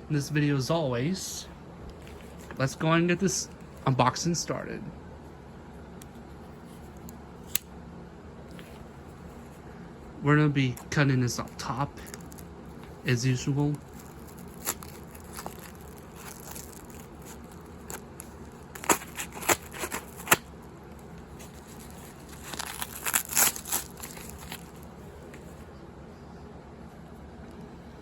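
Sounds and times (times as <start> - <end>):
packaging crackling and crinkling: 12.0 - 25.5
package being cut open: 13.7 - 24.8.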